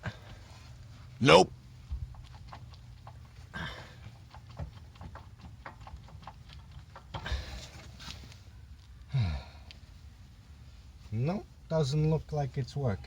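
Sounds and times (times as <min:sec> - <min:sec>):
person grunting: 0:01.2 - 0:01.4.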